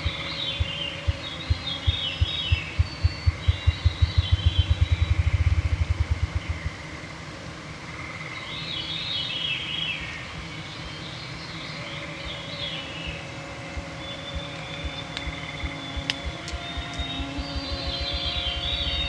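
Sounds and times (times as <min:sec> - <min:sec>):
songbirds singing: 0:00.0 - 0:07.1, 0:07.9 - 0:19.0
mosquito whine: 0:00.0 - 0:07.2, 0:10.4 - 0:19.0
deep throbbing pulse: 0:00.0 - 0:07.3, 0:13.1 - 0:19.0.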